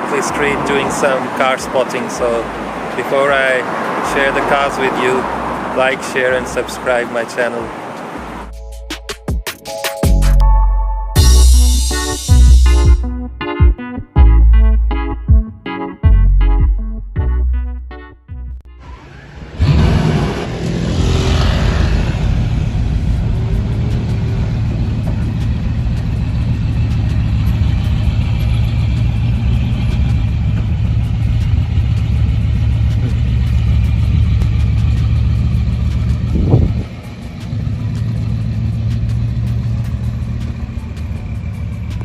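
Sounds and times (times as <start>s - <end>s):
car engine running: 18.9s - 42.0s.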